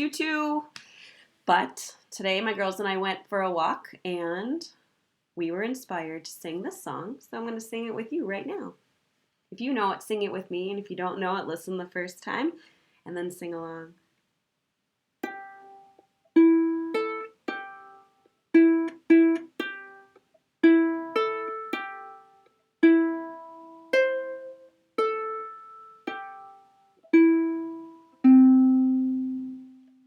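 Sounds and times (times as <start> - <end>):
plucked string instrument chords: 15.2 - 30.0.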